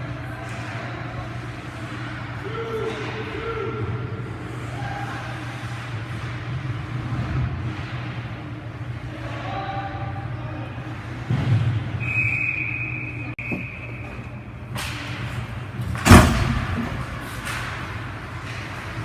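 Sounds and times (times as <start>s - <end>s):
high whistle-like tone: 12.0s - 14.2s.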